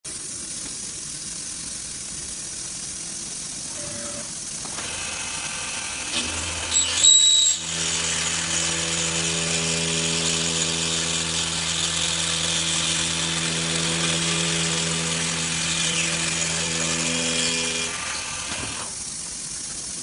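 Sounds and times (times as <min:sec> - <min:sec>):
motor hum and whine: 0:00.2 - 0:20.0
machining machine whirring: 0:03.4 - 0:20.0
brief high whistle: 0:06.7 - 0:07.6.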